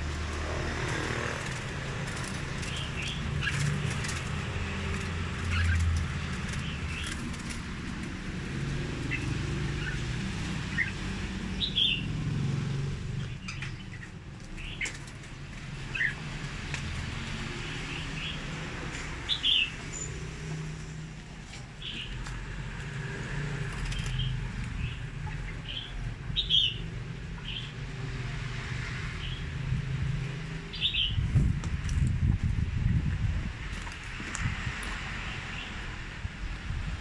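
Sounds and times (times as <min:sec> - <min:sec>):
caged birds chirping: 0:00.0 - 0:37.0
steady low rumble: 0:29.6 - 0:34.8.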